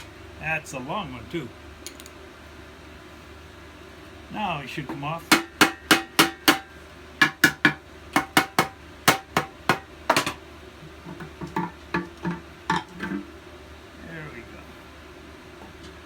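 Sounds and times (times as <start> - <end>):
hammer knocking on engine part: 4.9 - 10.4.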